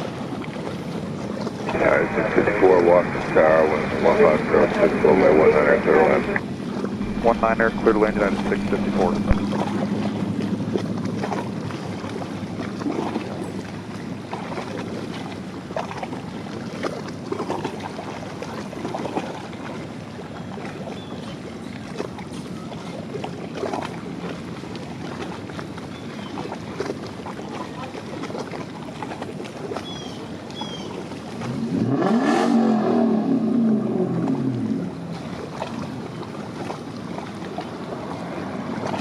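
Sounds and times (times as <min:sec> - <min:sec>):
wind on microphone: 0:01.6 - 0:11.8
jet airliner passing low: 0:01.7 - 0:10.8.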